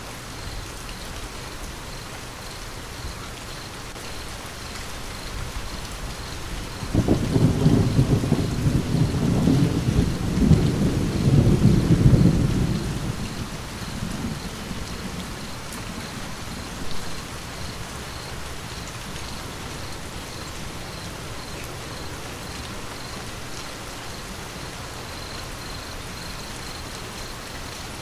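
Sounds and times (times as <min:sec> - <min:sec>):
steady rain falling: 0:00.0 - 0:28.0
thunder rumbling: 0:05.4 - 0:22.4.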